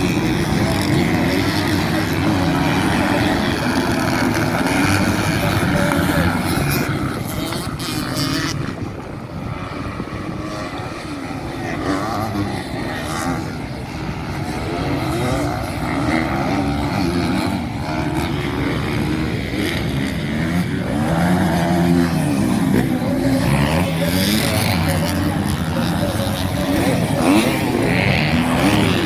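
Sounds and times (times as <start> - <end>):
motocross bike engines revving: 0.0 - 29.0.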